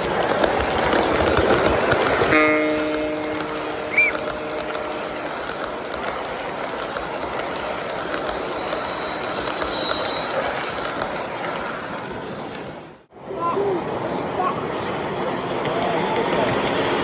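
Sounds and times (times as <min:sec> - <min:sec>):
train horn: 0:02.2 - 0:06.0, 0:08.9 - 0:10.7.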